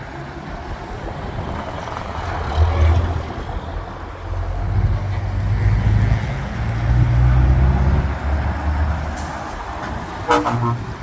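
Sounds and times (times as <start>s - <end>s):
truck diesel engine humming: 3.0s - 11.0s.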